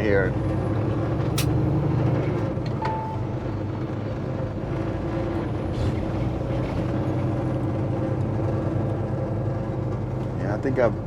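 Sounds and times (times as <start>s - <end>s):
short beep: 2.8s - 3.5s.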